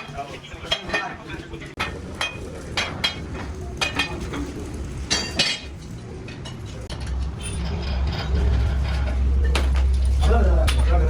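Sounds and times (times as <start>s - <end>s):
low rumble: 6.9s - 11.0s.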